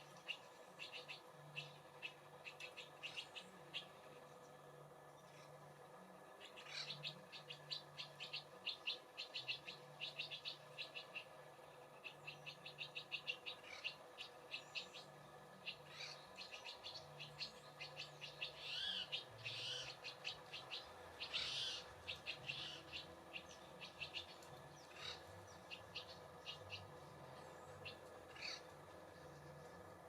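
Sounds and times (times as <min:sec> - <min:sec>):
songbirds chipping and twittering: 0:00.0 - 0:30.0
harsh bird calls: 0:12.0 - 0:28.7.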